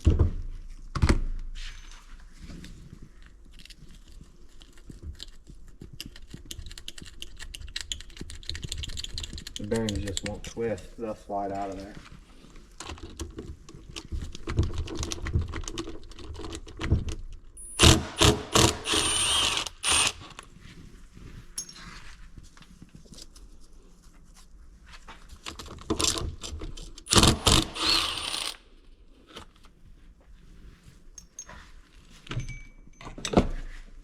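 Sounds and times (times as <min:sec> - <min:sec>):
metal tools clinking: 0:21.6 - 0:21.8, 0:31.2 - 0:31.6, 0:32.3 - 0:33.4
ringing metal clanks: 0:32.4 - 0:33.3.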